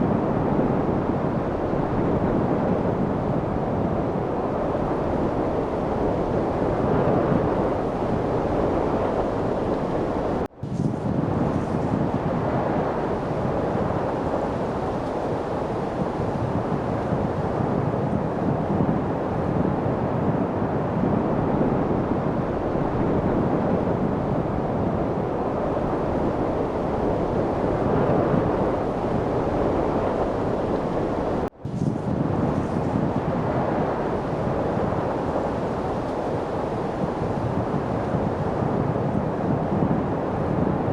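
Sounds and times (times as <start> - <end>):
steady light wind: 0.0 - 40.9.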